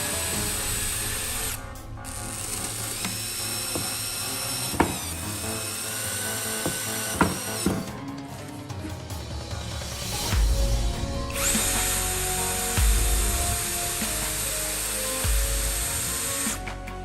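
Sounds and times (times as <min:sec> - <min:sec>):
power tool motor whining: 0:00.0 - 0:07.9, 0:11.3 - 0:17.0.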